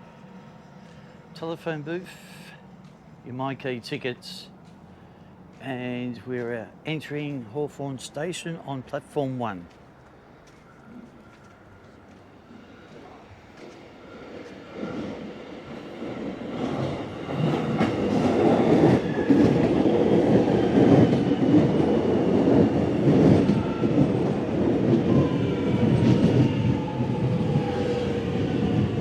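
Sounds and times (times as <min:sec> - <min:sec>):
electric train wheels on rail: 0:09.7 - 0:29.0.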